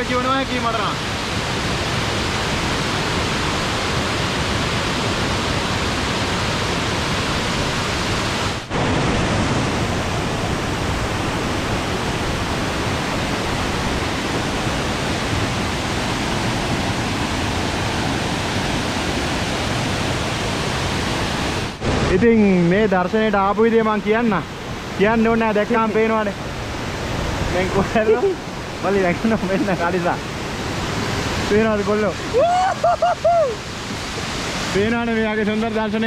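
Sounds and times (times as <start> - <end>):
waterfall roaring: 0.0 - 36.0.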